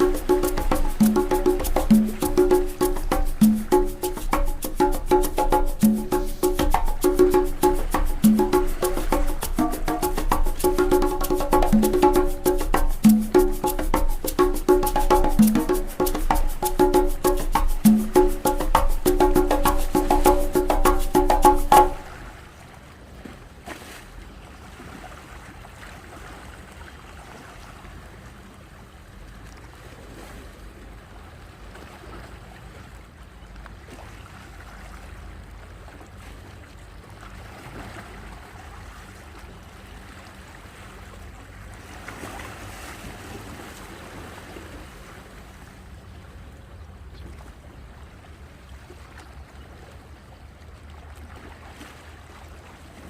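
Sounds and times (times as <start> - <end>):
sea waves washing ashore: 0.0 - 23.1.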